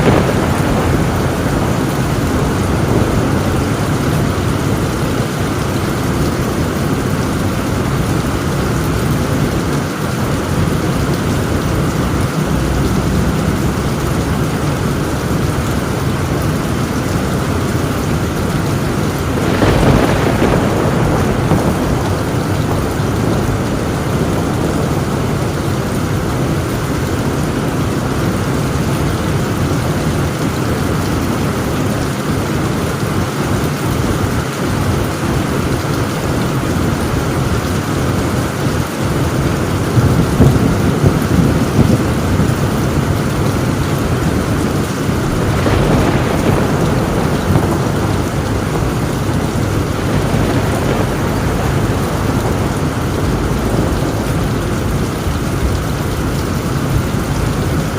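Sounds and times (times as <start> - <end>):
heavy rain on a tin roof: 0.0 - 57.9
thunder rumbling: 0.0 - 57.9.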